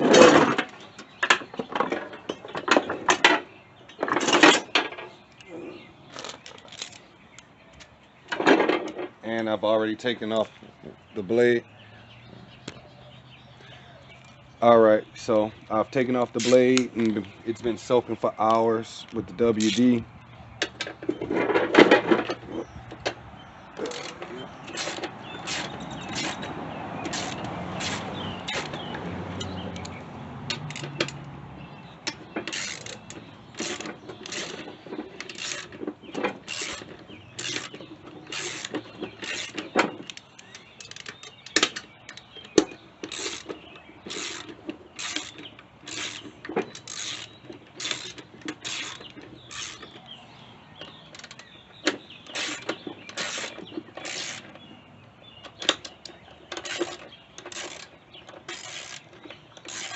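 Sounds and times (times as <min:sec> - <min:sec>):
ratchet wrench clicking: 0:32.5 - 0:34.6, 0:36.5 - 0:39.6, 0:43.1 - 0:43.5, 0:44.1 - 0:49.8, 0:56.6 - 0:57.9, 0:58.5 - 0:59.9.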